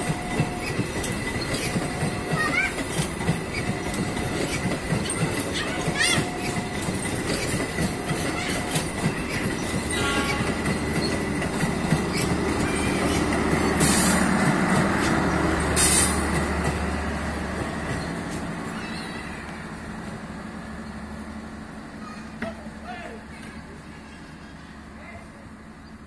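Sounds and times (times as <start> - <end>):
train wheels clattering over points: 0.0 - 18.5.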